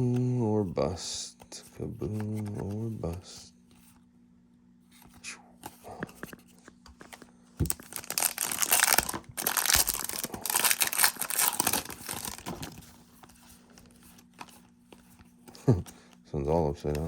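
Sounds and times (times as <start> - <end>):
foil wrapper tearing and crinkling: 7.7 - 12.8.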